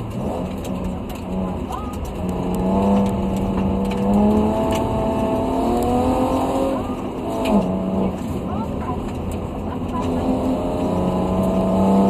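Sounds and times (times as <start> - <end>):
rally car engine accelerating: 0.0 - 12.0
tyres rumbling on gravel: 0.0 - 12.0.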